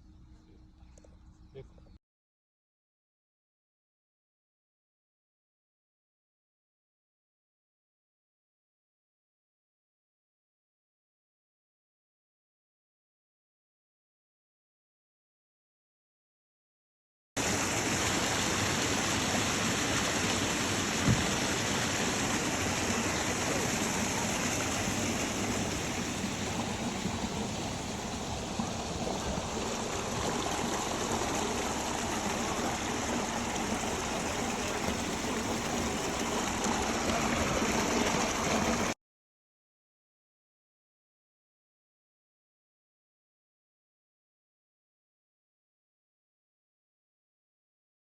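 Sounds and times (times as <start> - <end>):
rushing water: 17.4 - 39.0.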